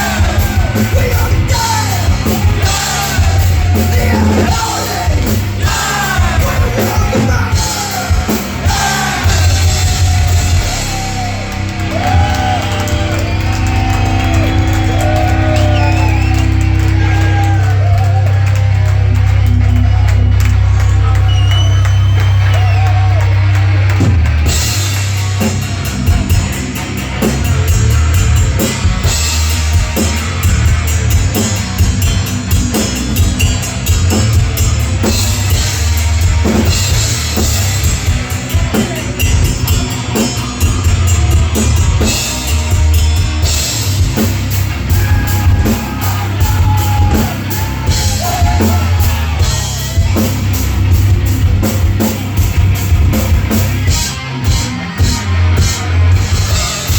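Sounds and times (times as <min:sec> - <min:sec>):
drum kit beat: 0:00.0 - 0:56.9
heavy metal band playing: 0:00.0 - 0:56.9.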